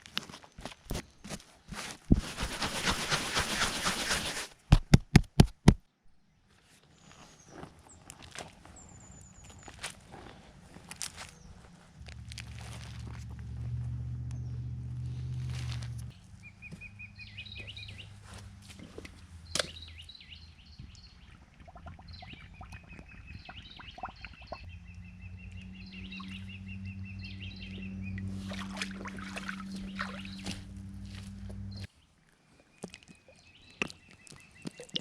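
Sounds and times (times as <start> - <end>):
low hum: 11.8 - 19.5, 24.4 - 31.9
small birds chirping: 14.2 - 35.0
bird trill: 22.1 - 28.8, 29.4 - 30.6.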